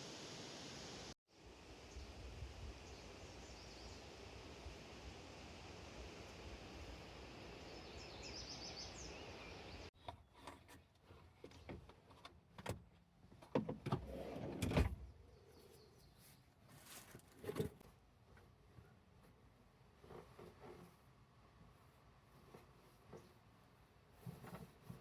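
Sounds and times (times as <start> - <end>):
outdoor breeze: 0.0 - 25.0
bird chirps: 7.6 - 9.9.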